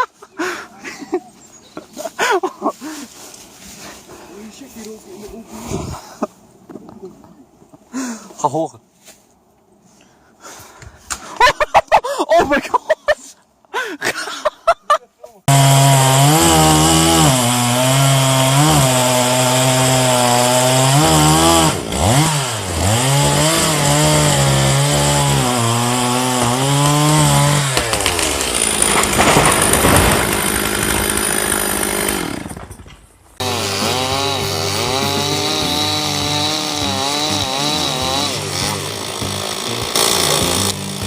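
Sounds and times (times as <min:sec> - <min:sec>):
chainsaw running at high revs: 0:15.5 - 0:32.6, 0:33.4 - 0:41.0.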